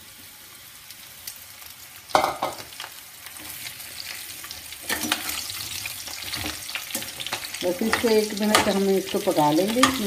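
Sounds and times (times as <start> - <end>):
food sizzling in hot oil: 0.0 - 10.0
metal spoon scraping a pot: 4.8 - 8.8.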